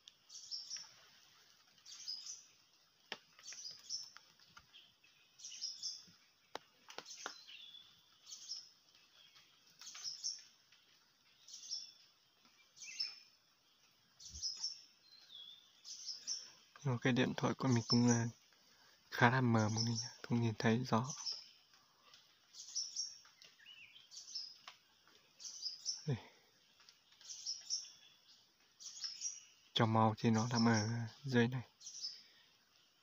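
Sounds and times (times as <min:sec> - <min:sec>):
small birds chirping: 0:00.0 - 0:33.0
faint clicks: 0:02.7 - 0:04.8, 0:06.1 - 0:07.4, 0:23.2 - 0:23.6, 0:24.5 - 0:25.3.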